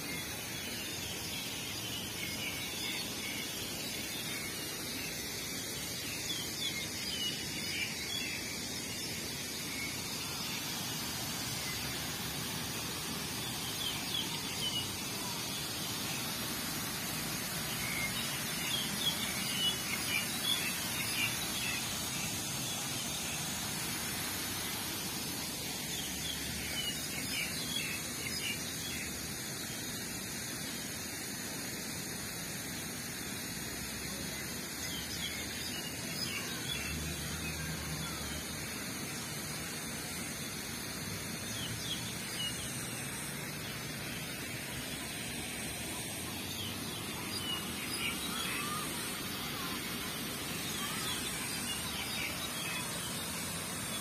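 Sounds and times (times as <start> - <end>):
steady outdoor hiss: 0.0 - 54.0
small birds chirping: 5.7 - 24.9, 41.2 - 54.0.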